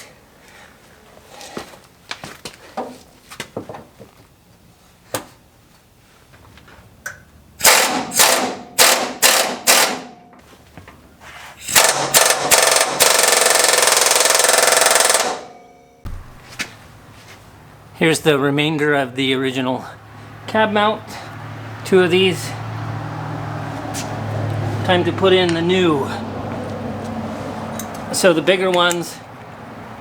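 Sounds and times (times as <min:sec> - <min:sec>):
impact wrench hammering: 0:07.6 - 0:10.2, 0:11.7 - 0:16.7.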